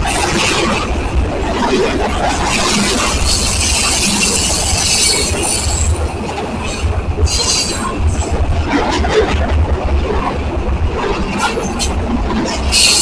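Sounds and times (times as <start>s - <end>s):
train wheels rumbling on rails: 0.0s - 13.0s
wheel screeches: 12.6s - 13.0s.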